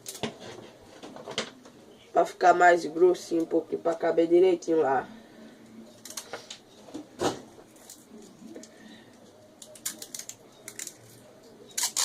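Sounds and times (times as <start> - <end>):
adhesive tape crackling: 6.0 - 6.6, 7.7 - 12.0.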